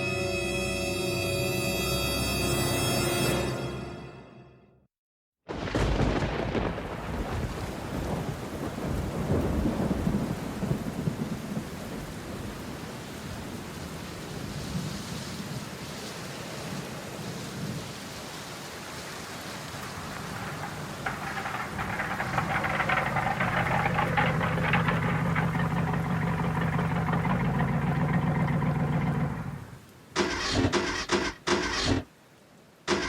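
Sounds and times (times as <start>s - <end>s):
thunder rumbling: 5.5s - 12.6s, 19.6s - 29.8s
steady rain: 5.5s - 33.0s.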